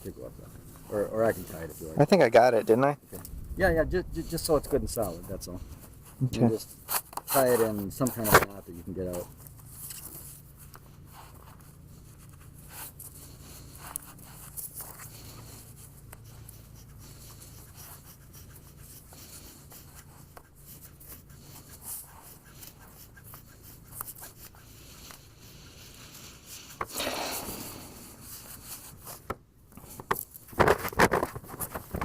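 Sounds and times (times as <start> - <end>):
low steady hum: 0.1 - 6.9.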